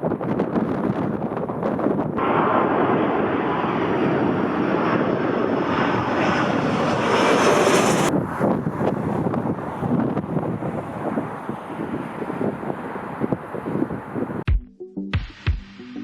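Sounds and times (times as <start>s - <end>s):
jet engines roaring: 2.2s - 14.4s.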